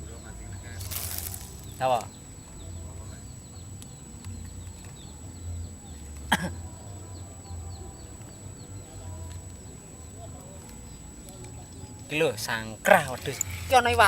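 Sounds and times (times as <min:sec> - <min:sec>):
faint high chirping: 0:00.0 - 0:14.0
low outdoor rumble: 0:00.0 - 0:14.0
short cough: 0:06.3 - 0:06.6.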